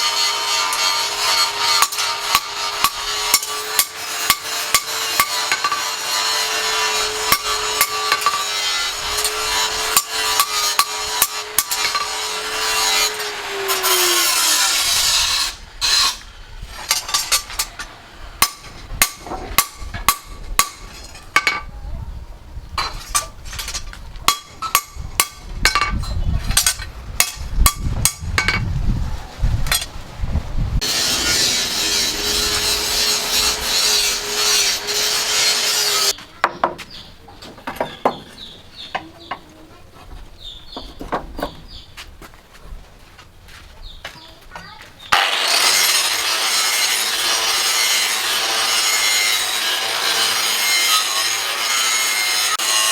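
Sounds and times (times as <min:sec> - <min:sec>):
power tool grinding steel: 0:00.0 - 0:18.6, 0:30.8 - 0:36.2, 0:45.1 - 0:52.9.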